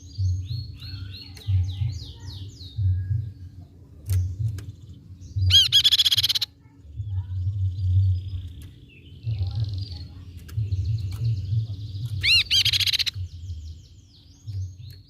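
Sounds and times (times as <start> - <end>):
low rumble: 0.0 - 5.9, 6.6 - 15.0
bird chattering calls: 5.5 - 6.6, 12.0 - 13.3.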